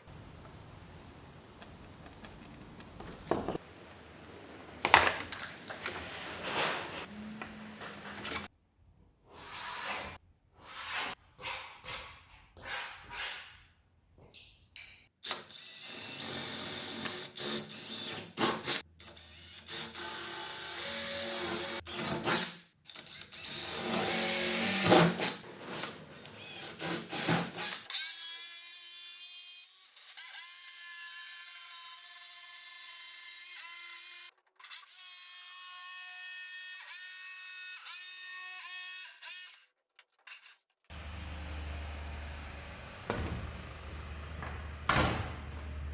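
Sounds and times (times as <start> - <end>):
knocks and clatter: 1.6 - 3.8, 43.0 - 45.9.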